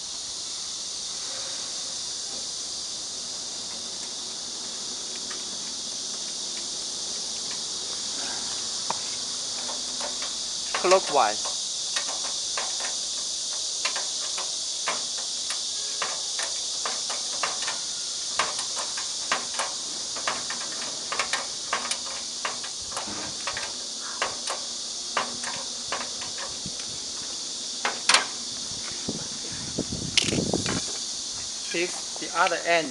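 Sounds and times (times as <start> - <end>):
steady high hiss: 0.0 - 32.9
cables and connectors clicking: 8.8 - 27.0.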